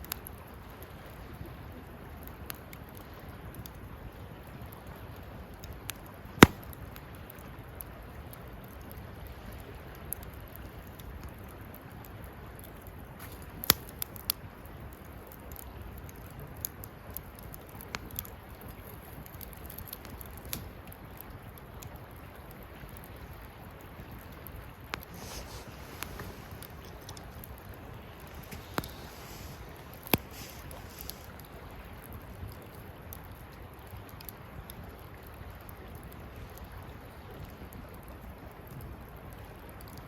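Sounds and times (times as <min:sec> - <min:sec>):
campfire burning: 0:00.0 - 0:40.0
fire crackling and popping: 0:00.0 - 0:40.0.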